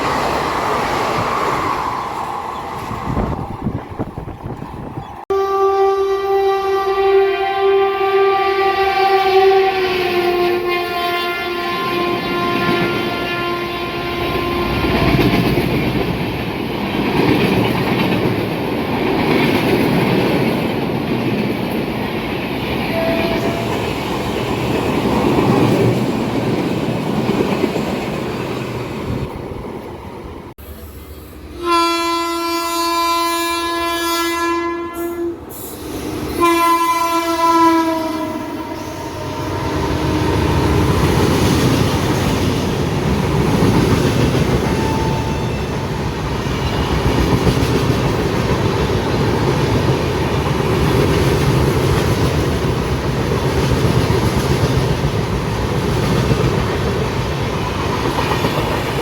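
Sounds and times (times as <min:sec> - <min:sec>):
train horn: 0:05.3 - 0:15.5, 0:22.8 - 0:24.0, 0:31.5 - 0:35.6, 0:36.3 - 0:40.9, 0:44.7 - 0:45.9
train coaches clattering over rails: 0:14.2 - 0:29.7, 0:40.0 - 0:59.0.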